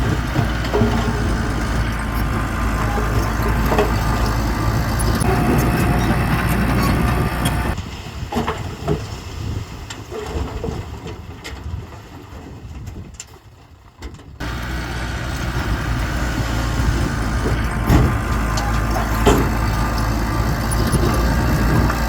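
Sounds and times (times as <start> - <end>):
heavy diesel engine running: 0.0 - 7.8, 14.4 - 22.0
low machinery rumble: 0.0 - 7.8, 14.4 - 22.0.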